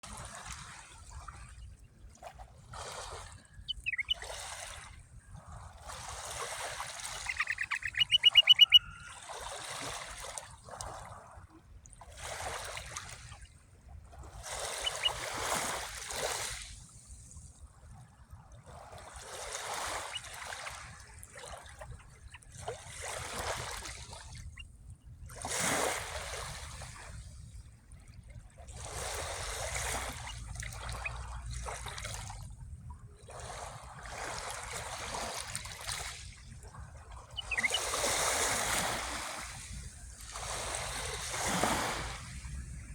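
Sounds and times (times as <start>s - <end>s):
small sea waves washing: 2.2s - 11.5s, 12.1s - 17.3s, 18.7s - 24.6s, 28.6s - 32.6s, 33.2s - 42.9s
bird chirp: 3.6s - 4.3s, 7.1s - 9.1s, 14.7s - 15.2s, 37.3s - 38.0s
bird trilling: 3.6s - 4.3s, 7.0s - 9.2s, 14.6s - 15.2s, 30.0s - 31.1s, 37.3s - 38.2s.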